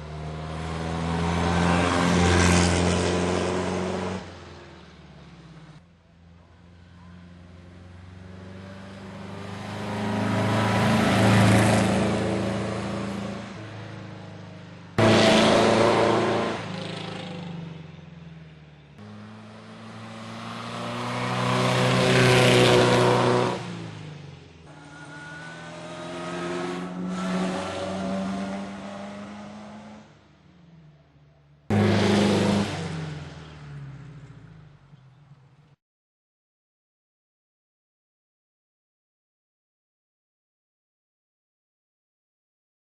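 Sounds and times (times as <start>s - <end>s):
racing cars passing by: 0.0s - 5.8s, 6.6s - 30.9s, 31.6s - 35.7s.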